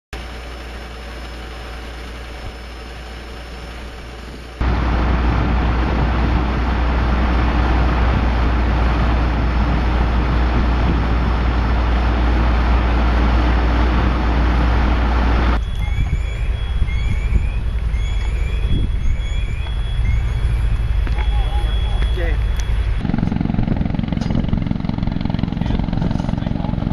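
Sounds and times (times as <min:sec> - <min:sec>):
vehicle and road noise: 0:00.2 - 0:26.9
short rising chirps: 0:15.5 - 0:23.0.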